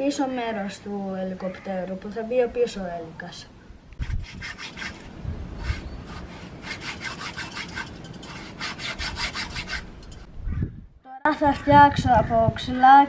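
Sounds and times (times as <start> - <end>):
hand saw cutting plastic bottle: 4.0 - 10.2.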